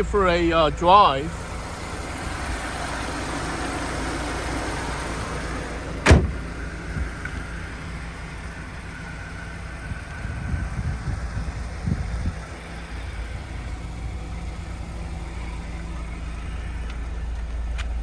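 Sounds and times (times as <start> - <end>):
car engine idling: 0.0 - 18.0
sharp thump: 6.0 - 7.4.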